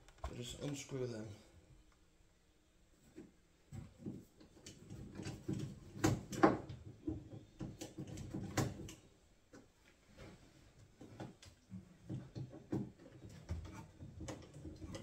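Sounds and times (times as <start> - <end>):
knocks on wooden cabinets: 5.1 - 8.9.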